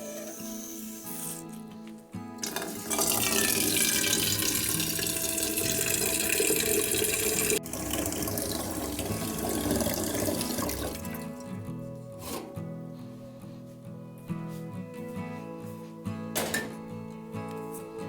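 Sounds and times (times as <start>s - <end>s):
tap water running into sink: 2.4s - 11.4s.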